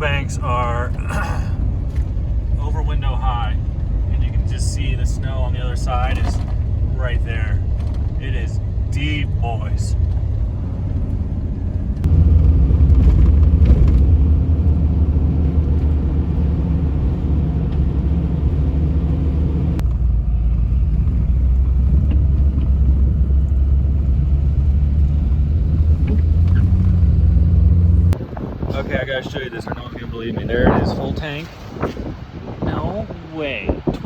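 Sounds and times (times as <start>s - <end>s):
vehicle engine and road rumble: 0.0s - 34.0s.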